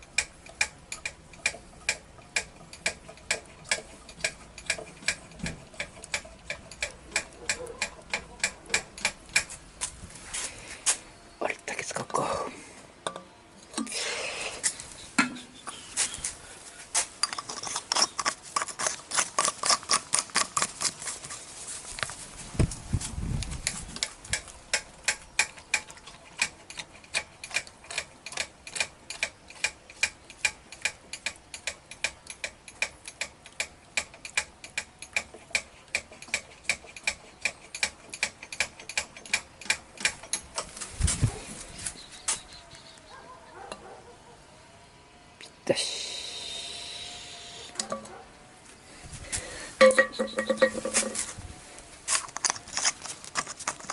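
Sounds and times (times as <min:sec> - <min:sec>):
mechanical clicking: 0:00.0 - 0:09.6, 0:23.6 - 0:40.7.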